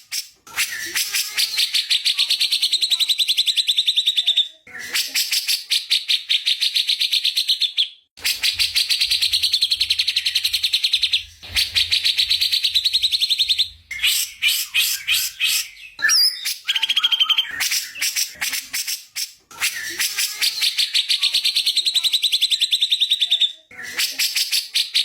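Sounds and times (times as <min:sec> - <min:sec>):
songbird singing trills: 0:12.3 - 0:18.1.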